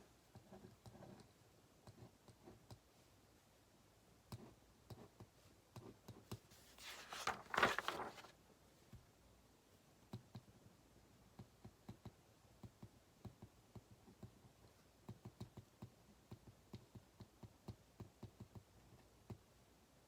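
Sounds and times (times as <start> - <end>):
paper rustling: 6.5 - 8.4.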